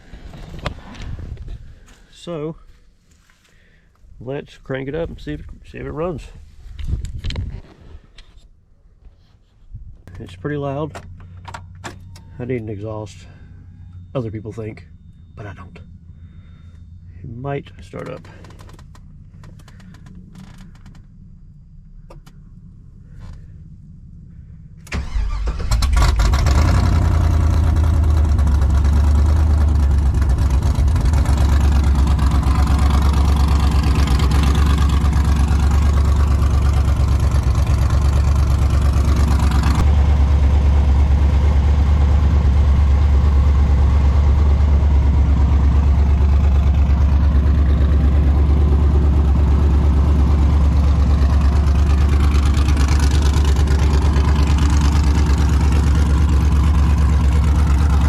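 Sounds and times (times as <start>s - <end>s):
loud engine idling: 12.2s - 20.1s, 21.2s - 58.0s
engine cranking and firing: 17.8s - 58.0s.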